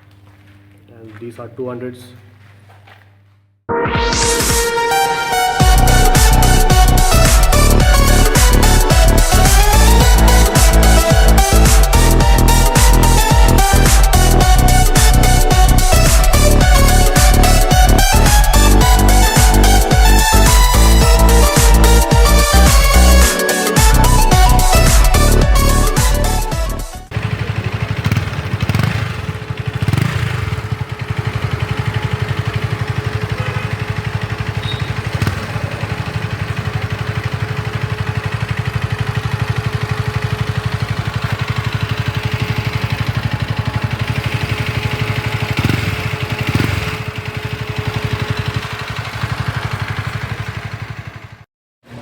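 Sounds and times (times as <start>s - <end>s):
motorcycle engine idling: 5.6s - 26.4s, 27.1s - 52.0s
engine throttle blips: 27.1s - 52.0s.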